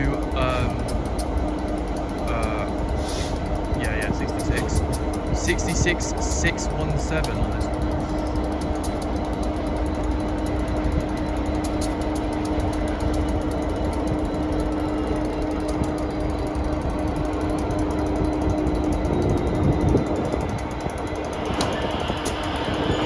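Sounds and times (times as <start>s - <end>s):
diesel locomotive idling: 0.0s - 23.0s
air hiss: 3.0s - 3.4s.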